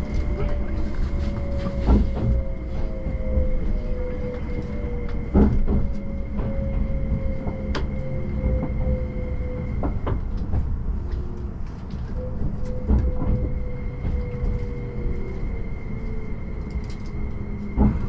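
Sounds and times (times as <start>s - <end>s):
train running gear rumble: 0.0s - 18.0s.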